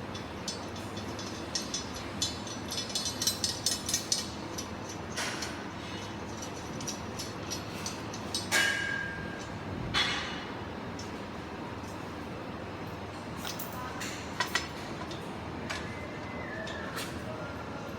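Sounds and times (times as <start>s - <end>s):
metallic clicks and rattles: 0.0s - 10.3s, 13.4s - 15.2s.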